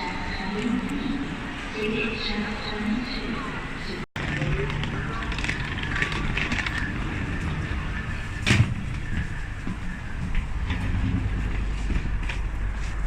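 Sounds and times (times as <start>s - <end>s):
low background rumble: 4.2s - 13.0s.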